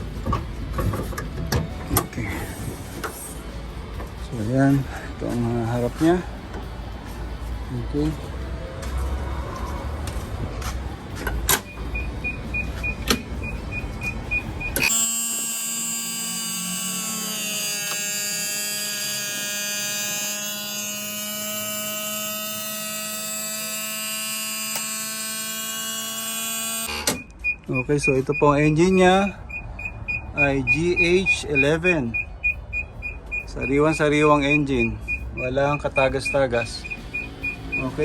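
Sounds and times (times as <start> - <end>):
electric motor whine: 14.9 - 26.9
rapid electronic beeping: 27.4 - 38.0.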